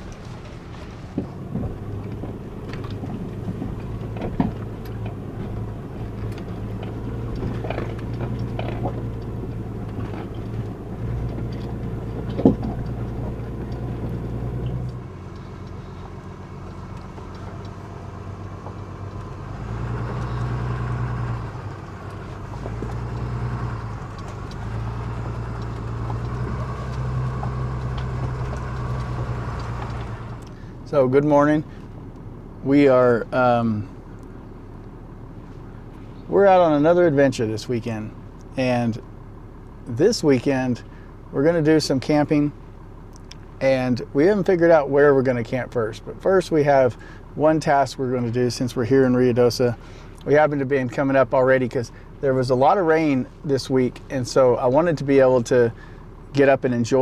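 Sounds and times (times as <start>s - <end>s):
knocks and clatters: 0.0s - 30.6s
truck engine running slowly: 0.0s - 57.0s.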